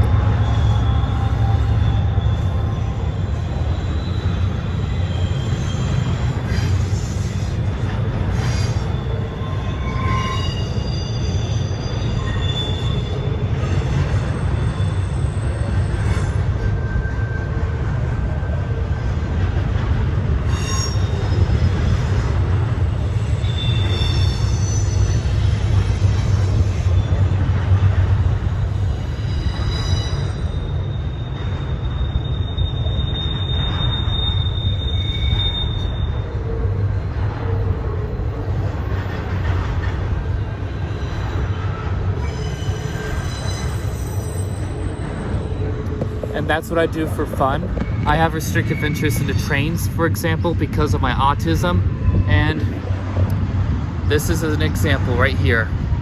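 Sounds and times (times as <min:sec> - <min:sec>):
high-pitched wheel squeals: 0:00.0 - 0:17.8, 0:20.4 - 0:27.4, 0:28.7 - 0:37.1, 0:40.7 - 0:46.5
train rumbling past: 0:00.0 - 0:56.0.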